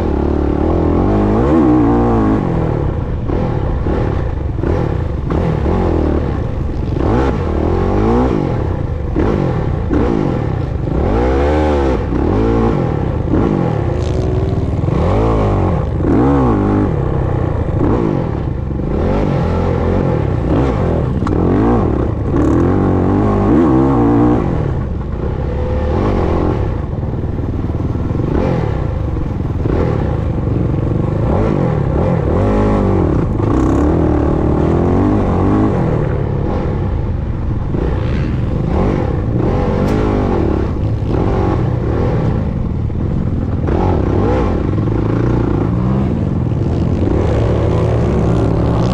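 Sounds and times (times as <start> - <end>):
motocross bike engine revving: 0.0 - 48.9.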